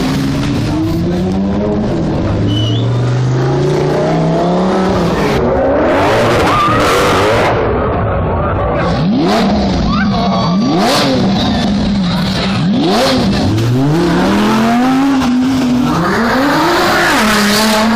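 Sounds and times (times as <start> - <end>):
car engines revving: 0.0 - 17.9.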